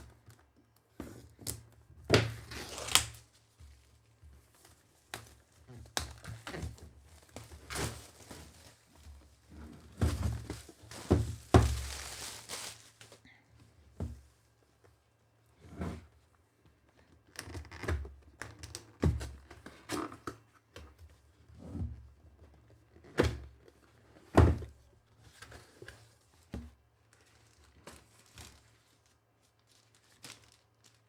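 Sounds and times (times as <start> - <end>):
cardboard box knocks and thumps: 9.8 - 12.0.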